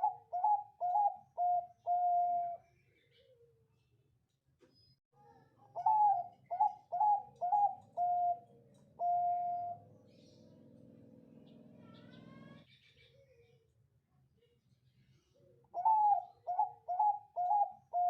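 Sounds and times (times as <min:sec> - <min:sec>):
dove cooing: 0:00.0 - 0:02.6, 0:05.6 - 0:09.9, 0:15.7 - 0:18.0.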